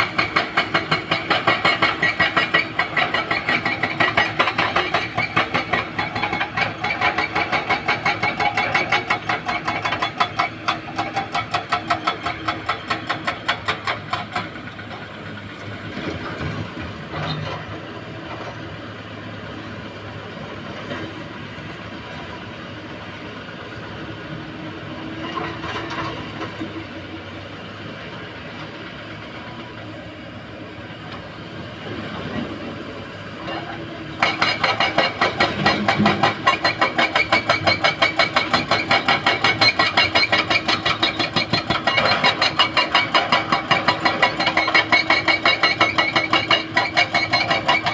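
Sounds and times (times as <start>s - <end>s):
excavator diesel engines running: 0.0s - 47.9s
engine knocks: 34.2s - 47.9s.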